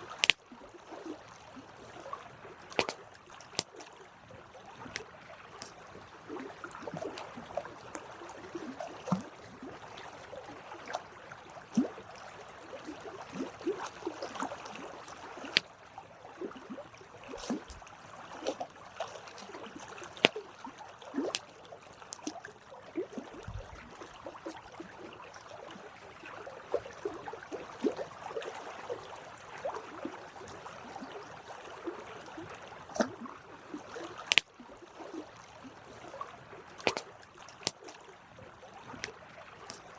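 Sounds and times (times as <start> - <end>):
campfire crackling and popping: 34.2 - 34.4.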